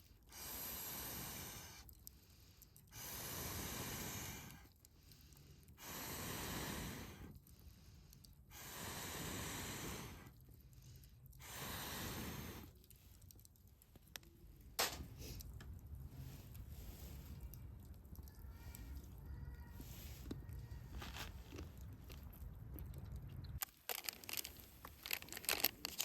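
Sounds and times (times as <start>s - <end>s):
person blowing out breath: 0.3s - 1.9s, 2.9s - 4.7s, 5.8s - 7.3s, 8.5s - 10.3s, 11.4s - 12.7s.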